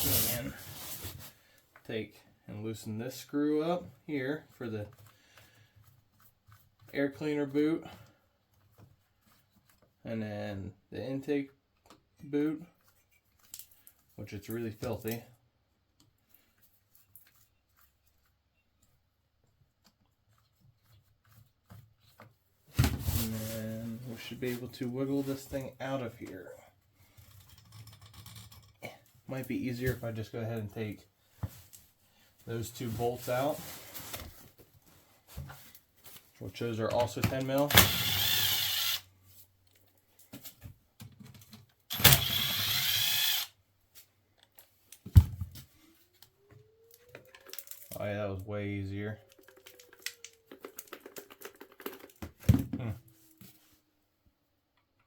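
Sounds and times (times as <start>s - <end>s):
power drill whirring: 37.7s - 39.0s, 41.9s - 43.5s.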